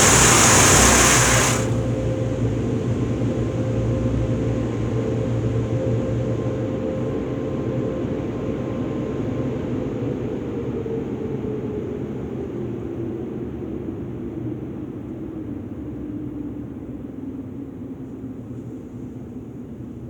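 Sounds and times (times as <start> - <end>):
car wash machinery whirring: 0.0 - 2.1.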